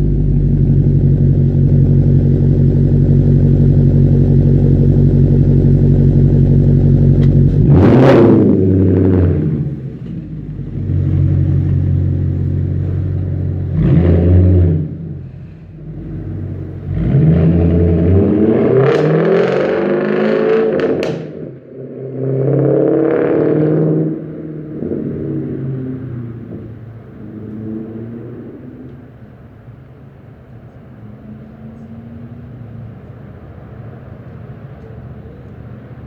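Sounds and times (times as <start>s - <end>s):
exhaust cracks: 0.0s - 20.0s, 20.6s - 21.7s
car engine revving: 0.0s - 29.4s.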